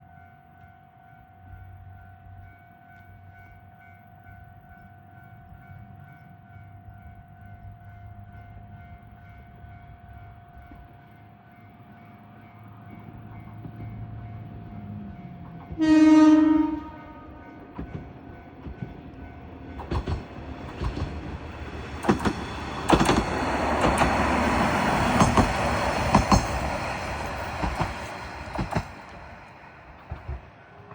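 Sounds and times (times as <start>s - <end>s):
train horn blast: 15.7s - 18.0s
wheels clacking over rail joints: 17.7s - 30.9s.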